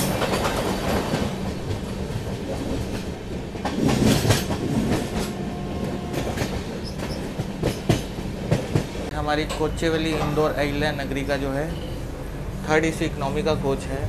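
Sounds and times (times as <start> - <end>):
wheels clacking over rail joints: 0.0 - 11.3
passing express train: 0.0 - 14.0
train wheels rumbling on rails: 0.0 - 14.0.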